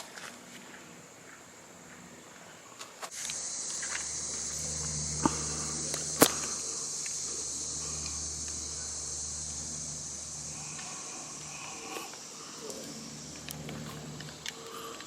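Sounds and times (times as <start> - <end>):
insects droning: 0.0 - 15.0
faint low hum: 0.5 - 15.0
sharp clicks: 3.1 - 8.6, 10.7 - 15.0.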